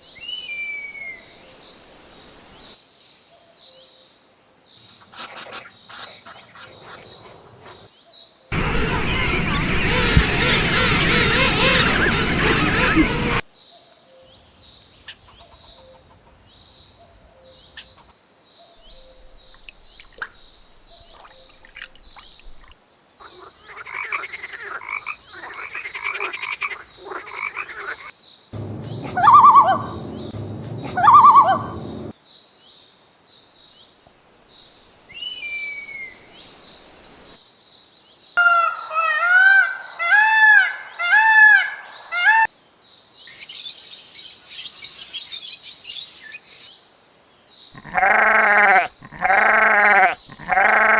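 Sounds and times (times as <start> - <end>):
frogs croaking: 19.0 - 32.1, 47.8 - 50.9.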